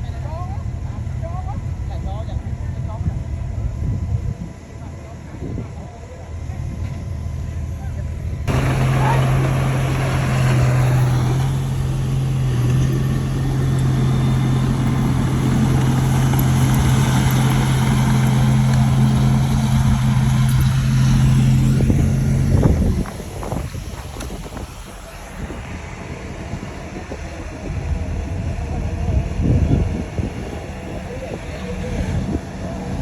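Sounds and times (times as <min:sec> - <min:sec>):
diesel engine droning loudly: 0:08.4 - 0:33.0.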